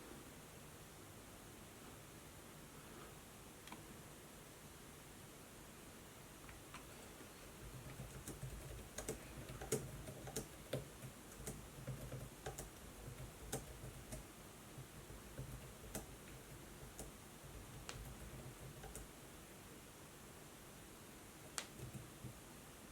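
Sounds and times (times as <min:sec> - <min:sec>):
faint low hum: 0:00.0 - 0:22.9
laptop keyboard clicks: 0:07.9 - 0:14.2.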